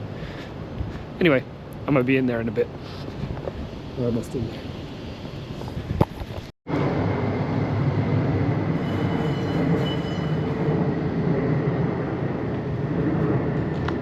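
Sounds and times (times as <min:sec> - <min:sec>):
passing vehicles rumble: 0:00.0 - 0:14.0
faint high whine: 0:06.7 - 0:11.6.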